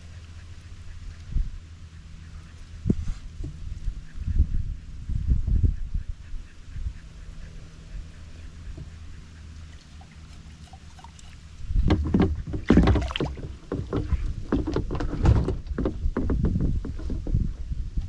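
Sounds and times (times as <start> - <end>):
paddle splashes: 9.6 - 17.2
knocks against canoe hull: 11.8 - 17.6.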